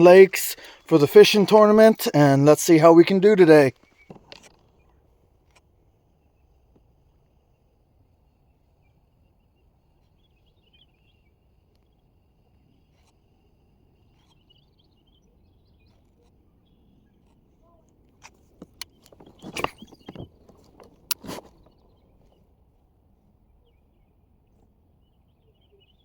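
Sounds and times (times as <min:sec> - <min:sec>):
birds chirping: 0:18.6 - 0:22.4.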